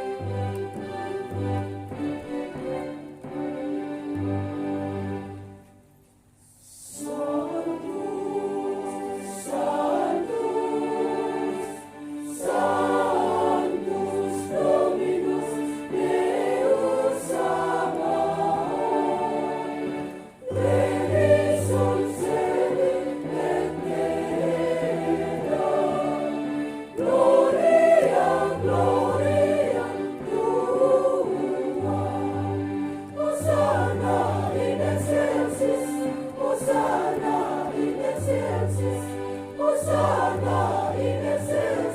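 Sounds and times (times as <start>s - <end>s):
choir singing a hymn: 0.0s - 5.5s, 6.6s - 41.9s.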